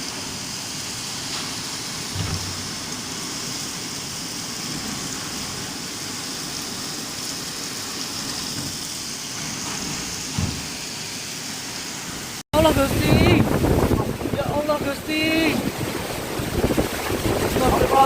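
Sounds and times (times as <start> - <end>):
heavy rain hissing: 0.0 - 18.0
low thump: 2.1 - 2.8, 10.3 - 10.7.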